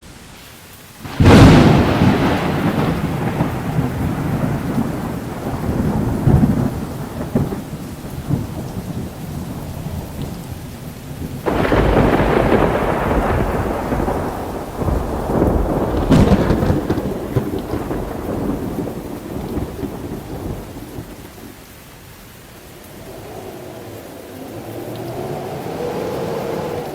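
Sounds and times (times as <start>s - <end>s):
steady rain: 0.0s - 26.9s
thunder clap rumbling: 1.0s - 26.9s
sharp thunder crack: 1.1s - 10.2s, 11.2s - 21.5s.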